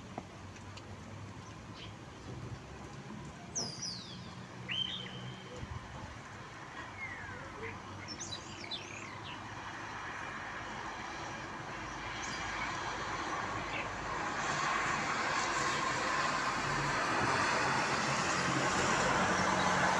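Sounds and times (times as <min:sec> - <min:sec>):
vehicle on wet road: 0:00.0 - 0:19.9
rain hissing: 0:11.5 - 0:19.9.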